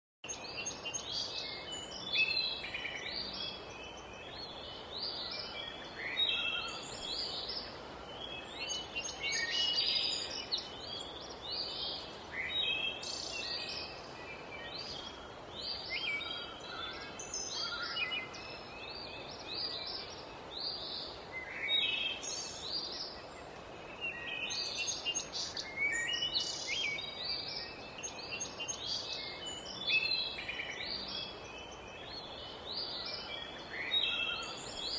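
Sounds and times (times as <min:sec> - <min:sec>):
birds chirping and trilling: 0:00.2 - 0:34.9
steady background hiss: 0:00.3 - 0:34.9.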